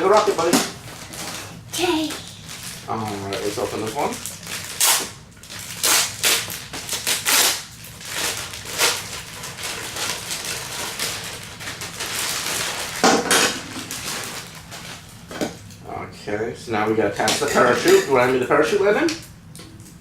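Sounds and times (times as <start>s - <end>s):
plastic packaging crinkling: 0.0s - 15.3s.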